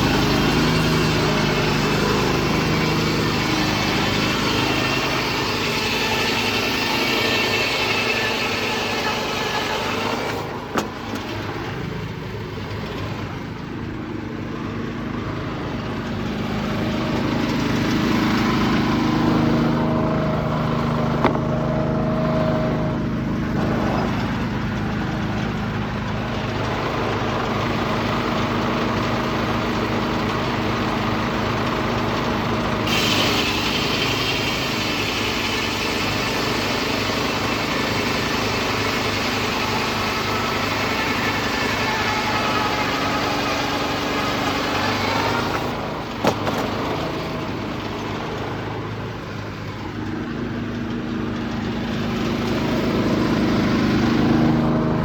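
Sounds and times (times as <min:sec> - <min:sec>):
muffled diesel engine running: 0:00.0 - 0:55.0
sharp knocks: 0:21.1 - 0:21.6.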